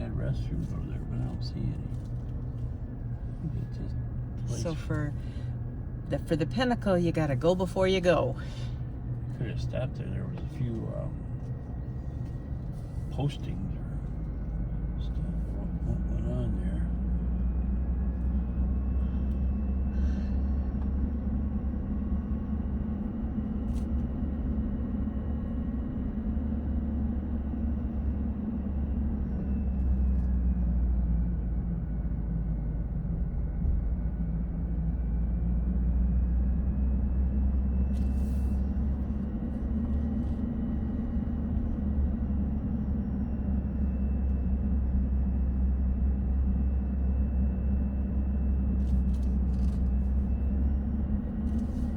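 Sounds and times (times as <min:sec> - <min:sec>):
car interior road rumble: 0:00.0 - 0:51.9
faint whine: 0:00.0 - 0:51.9.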